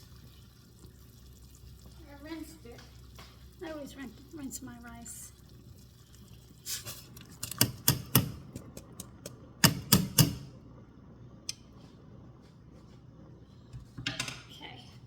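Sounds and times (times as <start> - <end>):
rice tapping against pot: 7.5 - 10.4.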